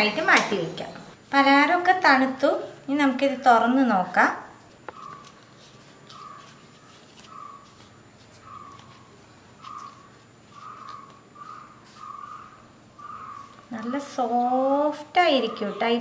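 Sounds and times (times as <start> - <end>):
leaves crinkling: 4.6 - 14.7
bird calling: 4.9 - 5.4, 6.0 - 16.0.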